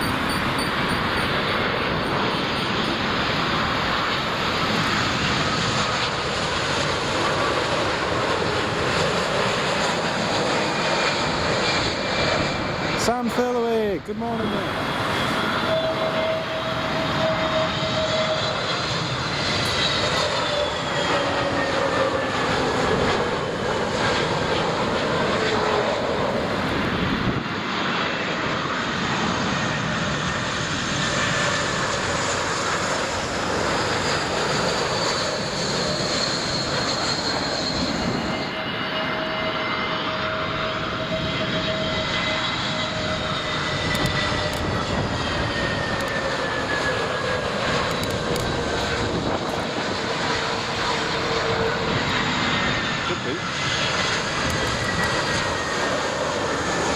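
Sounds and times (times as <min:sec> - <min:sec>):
jet engines running: 0:00.0 - 0:56.9.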